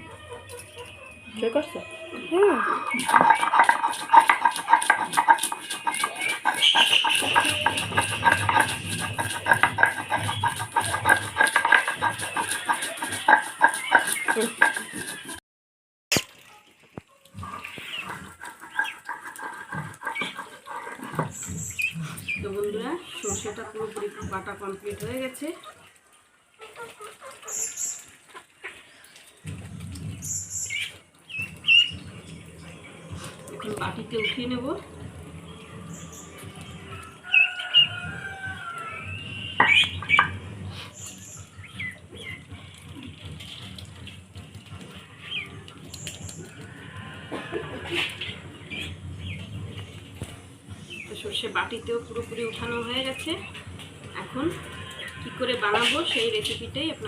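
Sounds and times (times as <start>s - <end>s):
birds chirping: 0.0s - 15.4s, 17.3s - 57.0s
rhythmic scraping of grinding: 0.0s - 15.4s, 17.4s - 57.0s
low rumble: 31.4s - 37.2s
rising and falling bird calls: 35.5s - 40.4s.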